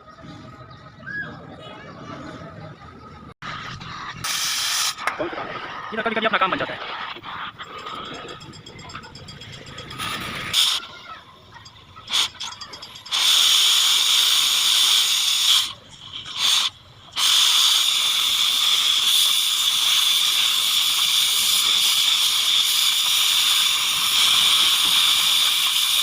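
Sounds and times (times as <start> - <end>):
cutting torch hissing: 3.6 - 8.0, 13.1 - 26.0.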